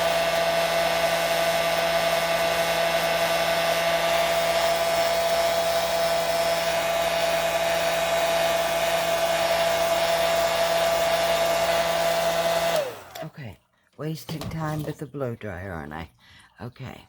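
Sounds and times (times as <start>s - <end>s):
hair dryer running: 0.0s - 13.3s.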